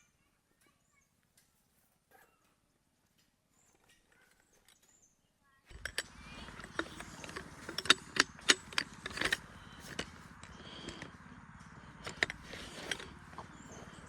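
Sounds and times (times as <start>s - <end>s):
low steady hum: 5.7s - 14.0s
sharp clicks and clinks: 5.7s - 14.0s.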